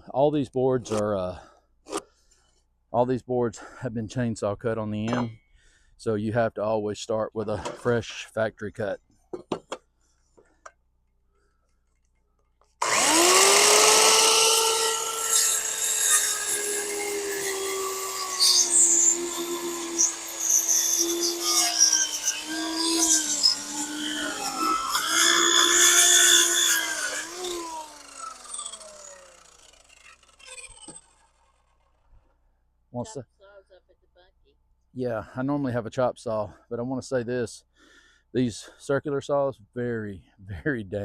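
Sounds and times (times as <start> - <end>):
circular saw cutting wood: 12.8 - 32.1.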